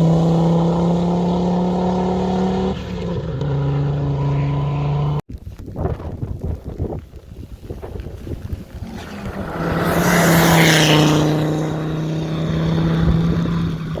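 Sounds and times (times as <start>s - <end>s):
rally car engine: 0.0s - 5.2s, 8.7s - 14.0s.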